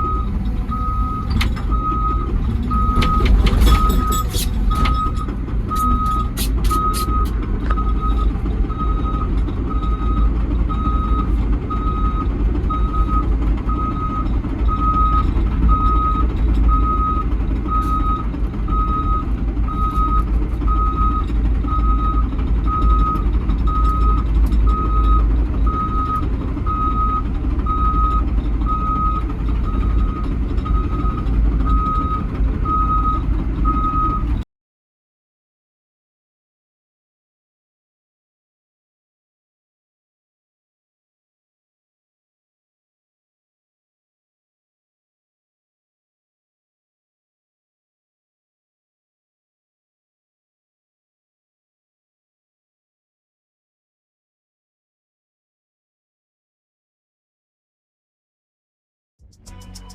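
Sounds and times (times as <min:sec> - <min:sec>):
diesel engine rumble: 0:00.0 - 0:34.4, 0:59.2 - 0:59.9
excavator travel alarm beeping: 0:00.0 - 0:34.4
sharp metal clanks: 0:03.0 - 0:05.2.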